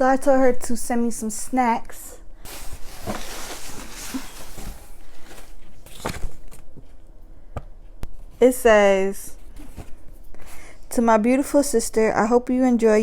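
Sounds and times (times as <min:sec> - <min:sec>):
packaging and paper rustling: 0:02.4 - 0:06.9.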